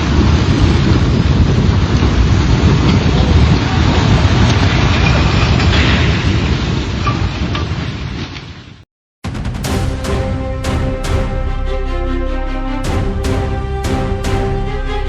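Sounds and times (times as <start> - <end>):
heavy rain: 0.0 - 8.6, 9.4 - 15.0
deep rumble: 9.2 - 15.0.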